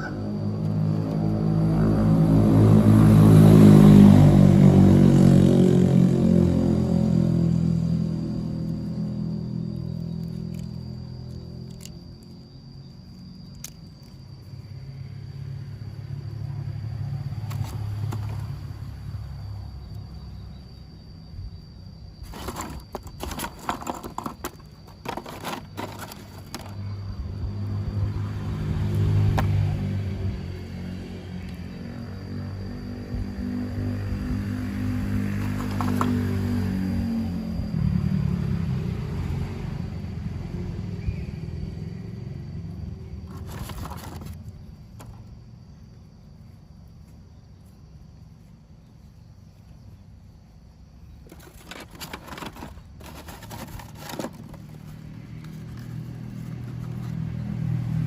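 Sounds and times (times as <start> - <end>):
vehicle engine passing by: 0.0 - 11.7, 14.9 - 20.2, 25.8 - 44.4, 52.3 - 58.0
clicks and rattles: 22.3 - 26.8, 51.2 - 55.9.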